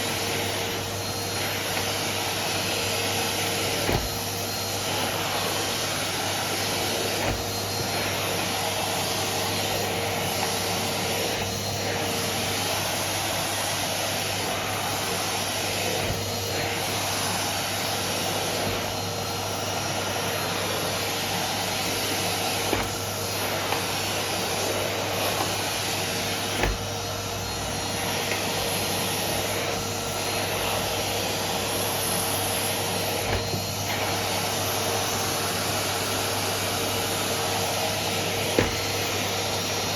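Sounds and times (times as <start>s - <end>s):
vacuum cleaner running: 0.0s - 39.9s
vacuum cleaner knocks and bumps: 3.8s - 4.2s, 7.2s - 7.5s, 22.6s - 23.1s, 26.5s - 27.0s, 33.2s - 33.7s, 38.4s - 39.0s.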